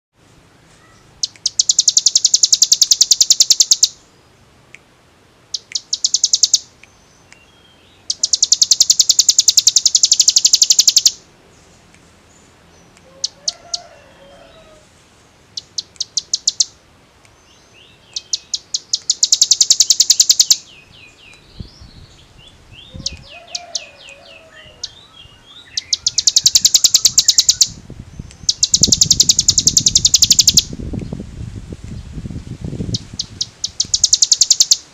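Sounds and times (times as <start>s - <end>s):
soft bird chirping: 0.7s - 4.8s, 5.5s - 31.2s, 32.9s - 34.9s
bird drill-like trills: 1.2s - 4.0s, 5.5s - 6.8s, 8.0s - 11.2s, 15.5s - 16.8s, 18.1s - 20.7s, 22.8s - 27.8s, 28.4s - 30.7s, 32.9s - 34.9s.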